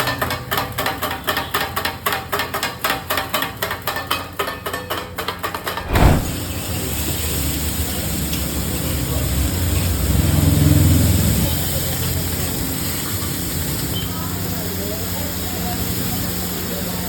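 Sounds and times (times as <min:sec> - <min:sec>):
thump: 0:05.8 - 0:06.4.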